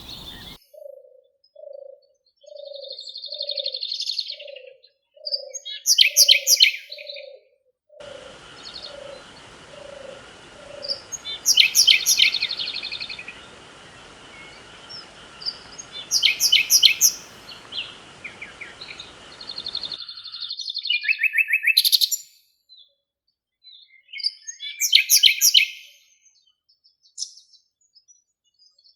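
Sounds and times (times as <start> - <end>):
low hooting call: 0.0 - 0.6, 8.0 - 20.0
steady hiss with faint tones: 0.0 - 0.6, 8.0 - 20.1
bird rapid high notes: 8.5 - 20.0.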